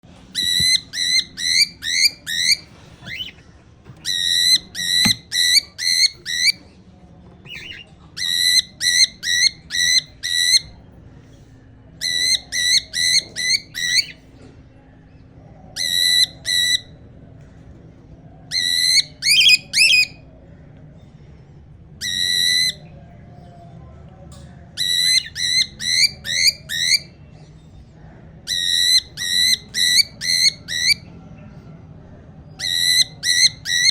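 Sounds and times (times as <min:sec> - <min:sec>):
cockatiel whistling: 0:00.4 - 0:03.3, 0:04.0 - 0:06.6, 0:32.6 - 0:33.9.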